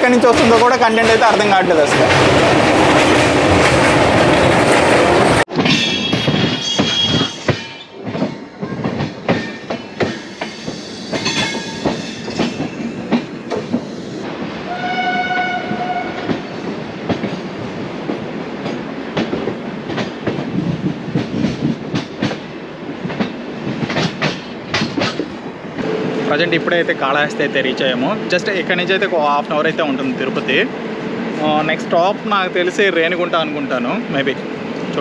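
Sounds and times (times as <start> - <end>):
train rumble: 0.0 - 35.0
train horn: 14.7 - 16.3.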